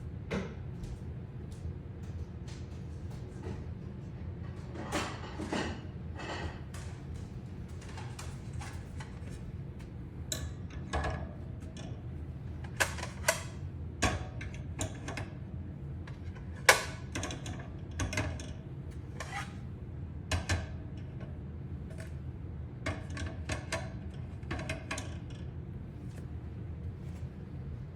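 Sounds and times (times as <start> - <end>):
low steady hum: 0.0 - 27.9.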